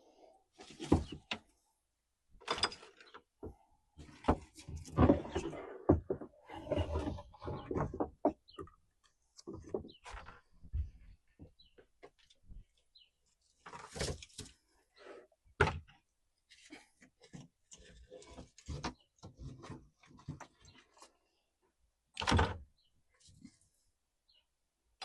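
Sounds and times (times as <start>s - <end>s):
rummaging knocks and clunks: 0.6s - 1.5s, 2.4s - 8.8s, 9.4s - 12.7s, 15.6s - 16.0s, 16.8s - 21.0s.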